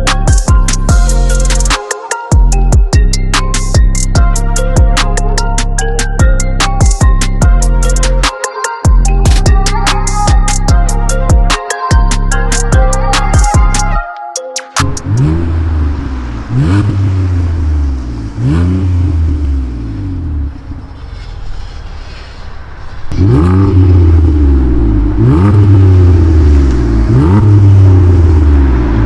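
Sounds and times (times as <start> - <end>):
car engine revving through exhaust: 14.8 - 29.0.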